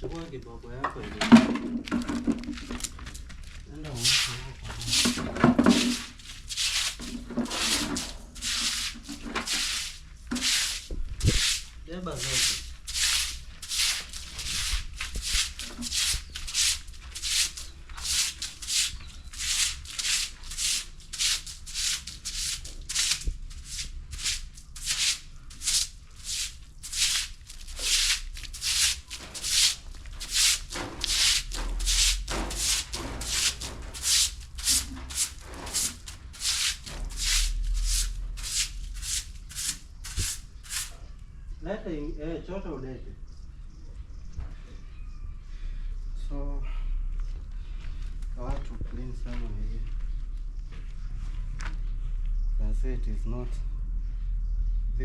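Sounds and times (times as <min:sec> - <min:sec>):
brush strokes on hard surface: 0:03.9 - 0:41.0.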